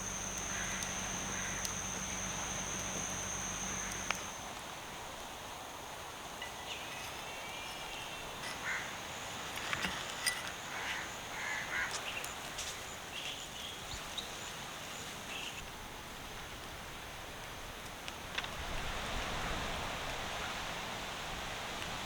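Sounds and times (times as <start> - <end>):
sharp clicks: 0.0 - 4.4
steady outdoor hiss: 0.0 - 22.0.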